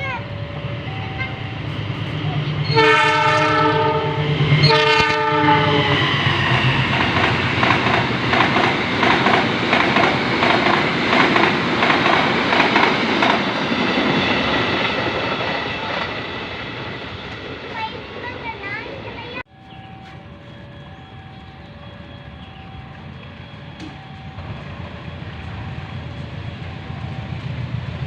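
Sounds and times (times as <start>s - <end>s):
train wheels clacking over rails: 0.0s - 3.1s, 5.8s - 28.0s
train horn blasts: 0.7s - 6.4s.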